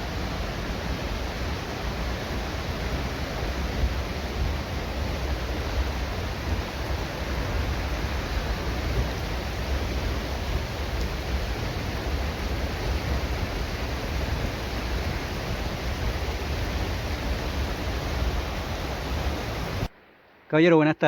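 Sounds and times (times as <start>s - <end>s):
waterfall roaring: 0.0s - 19.9s.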